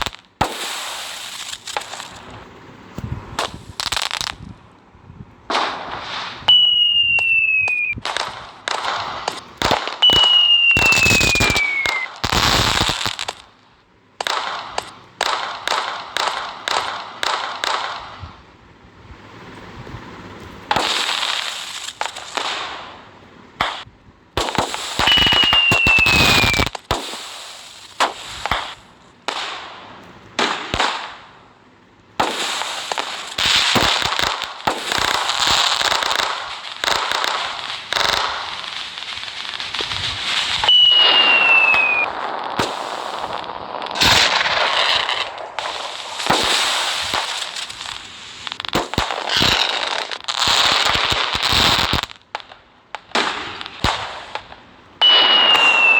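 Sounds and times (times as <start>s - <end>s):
firecracker bangs: 0.0s - 2.4s, 5.5s - 13.5s, 20.7s - 23.0s, 23.6s - 31.4s, 32.2s - 52.4s, 53.0s - 55.9s
fireworks hissing and crackling: 0.0s - 4.6s, 5.4s - 55.9s
falling firework whistle: 5.9s - 13.4s, 24.4s - 28.8s, 32.2s - 52.1s, 55.0s - 55.9s.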